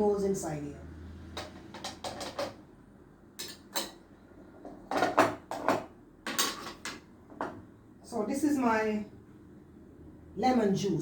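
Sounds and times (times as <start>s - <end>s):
kitchenware clicking and knocking: 1.3s - 2.6s, 3.4s - 4.0s, 4.6s - 7.6s.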